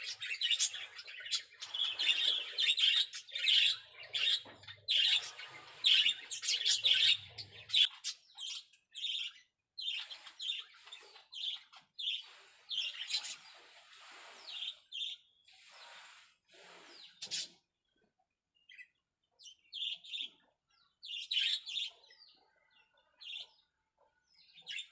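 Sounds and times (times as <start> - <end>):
finches chirping: 0.0 - 17.6.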